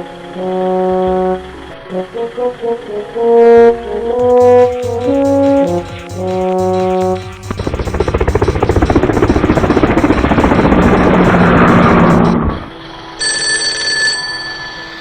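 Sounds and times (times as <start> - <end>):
fast rattling mechanical effect: 4.3 - 12.4
bell-like ding: 13.2 - 15.0.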